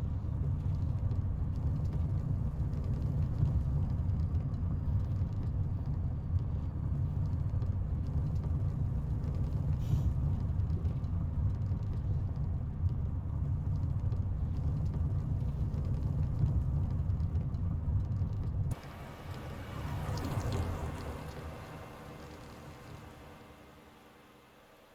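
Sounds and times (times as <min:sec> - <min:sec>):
road noise: 0:18.7 - 0:24.9
truck diesel engine: 0:18.7 - 0:24.9.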